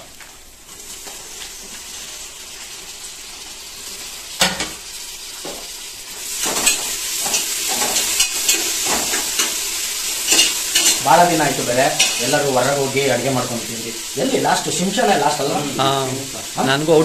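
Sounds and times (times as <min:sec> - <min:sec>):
food sizzling in oil: 0:00.0 - 0:17.0
spoon clinking and scraping pot: 0:10.3 - 0:11.0, 0:12.0 - 0:12.3.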